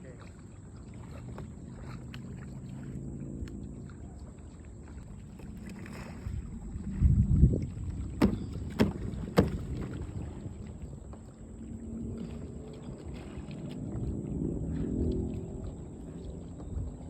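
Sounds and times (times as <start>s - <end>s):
water splashing and sloshing: 0.0s - 17.0s
sharp knocks: 8.2s - 9.7s.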